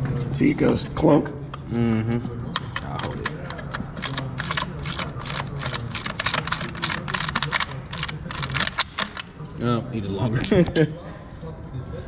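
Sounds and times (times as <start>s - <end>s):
ratchet wrench clicking: 2.8s - 9.3s.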